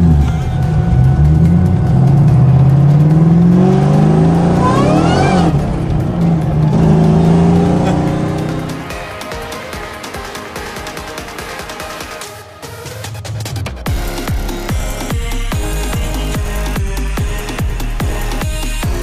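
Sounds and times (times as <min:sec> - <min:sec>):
supercharger whine: 0:00.0 - 0:09.2
car engine accelerating: 0:00.0 - 0:09.7.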